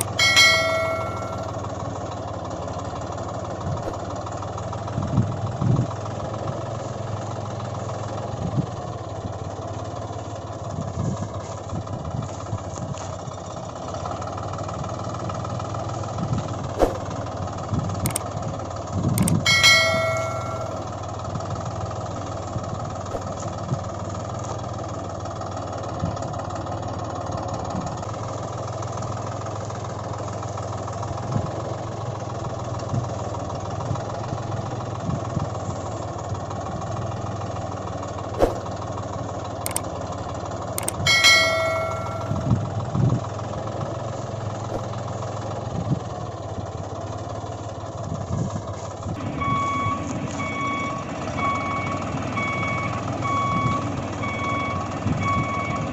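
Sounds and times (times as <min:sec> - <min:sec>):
bell-like ding: 0:00.0 - 0:01.7, 0:19.2 - 0:21.0, 0:40.8 - 0:42.6
reversing beeps: 0:49.2 - 0:55.9.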